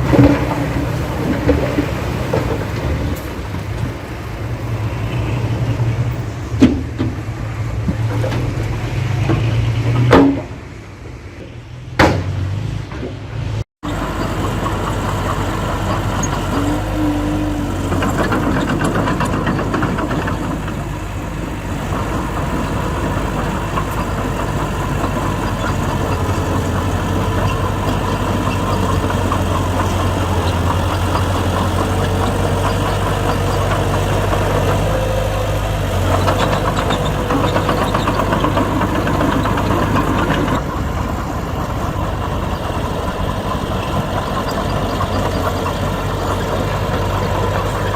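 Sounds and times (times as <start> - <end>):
heavy diesel engines droning: 0.0 - 47.9
machinery clattering: 13.9 - 47.9.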